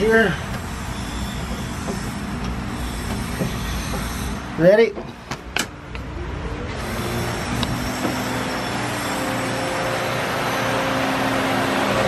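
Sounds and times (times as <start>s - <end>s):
electric fan spinning up: 6.5s - 12.0s.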